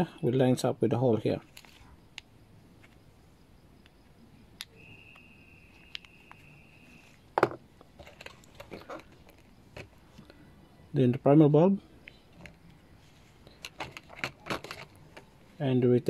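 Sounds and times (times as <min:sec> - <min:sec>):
steady high tone: 0:03.4 - 0:07.2.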